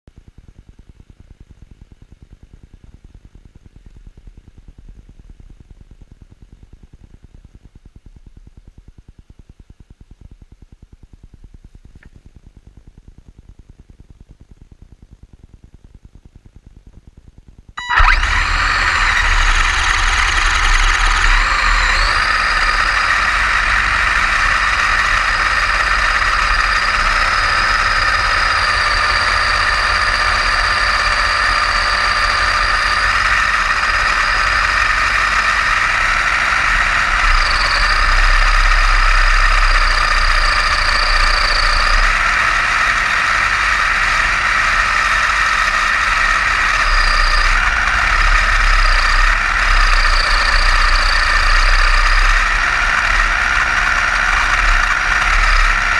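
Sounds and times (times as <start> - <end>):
electric motor whine: 17.8 - 55.9.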